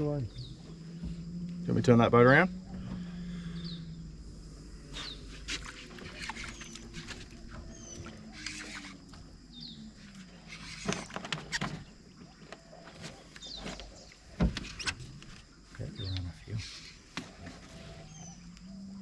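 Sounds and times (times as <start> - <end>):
faint low hum: 0.0 - 11.2.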